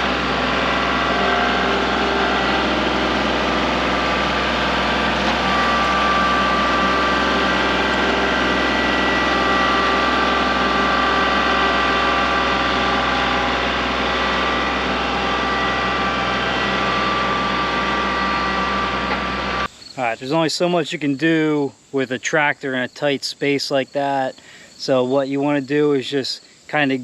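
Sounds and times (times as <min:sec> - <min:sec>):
tractor diesel engine running: 0:00.0 - 0:20.1.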